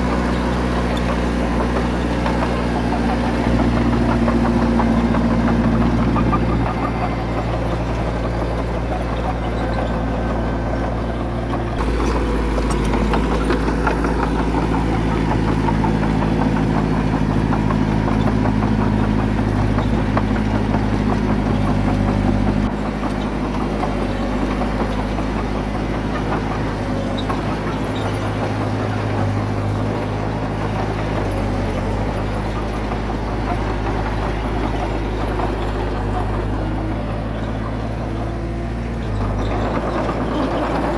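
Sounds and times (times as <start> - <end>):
heavy diesel engine running: 0.0 - 40.9.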